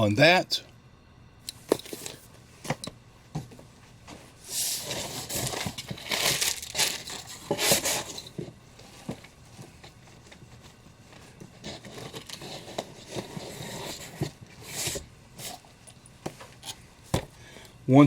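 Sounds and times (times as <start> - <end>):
comic book pages crinkling: 4.7 - 15.5.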